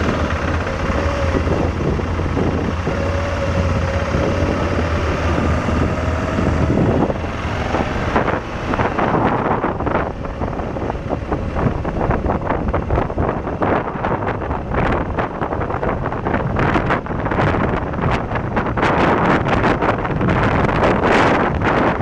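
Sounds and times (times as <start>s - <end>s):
steady whine: 0.0s - 16.0s
motorcycle engine: 0.0s - 20.8s
road noise: 0.0s - 22.0s
wind buffeting microphone: 0.0s - 22.0s.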